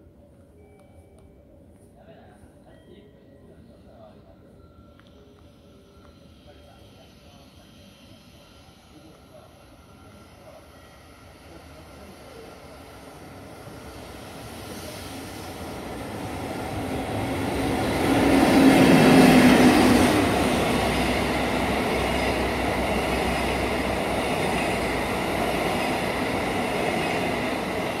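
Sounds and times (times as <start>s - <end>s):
train wheels clattering on rails: 16.0s - 28.0s.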